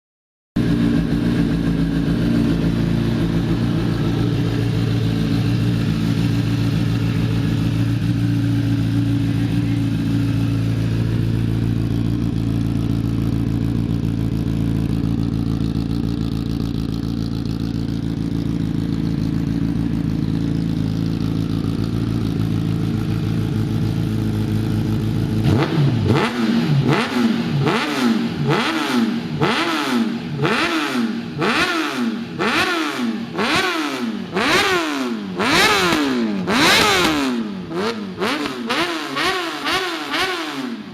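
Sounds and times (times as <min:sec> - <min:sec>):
motorcycle engine idling and revving: 0:00.6 - 0:40.9.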